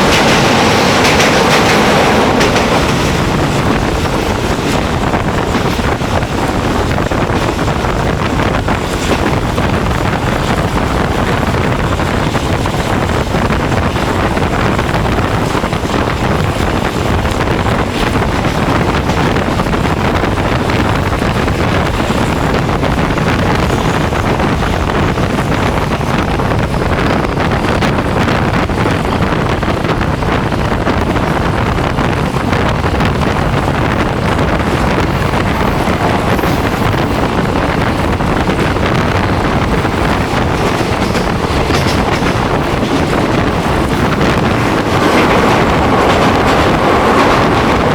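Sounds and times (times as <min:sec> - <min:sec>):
moving train rumble: 0:00.0 - 0:47.9
wind buffeting microphone: 0:00.0 - 0:47.9.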